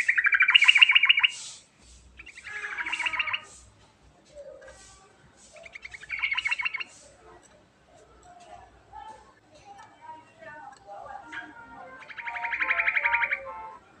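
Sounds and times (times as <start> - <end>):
bird chattering song: 0.0 - 3.7, 5.4 - 7.2, 10.7 - 13.8.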